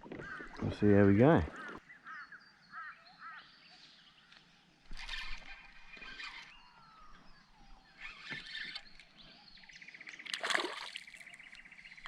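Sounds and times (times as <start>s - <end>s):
water splashing around kayak: 10.0s - 11.7s.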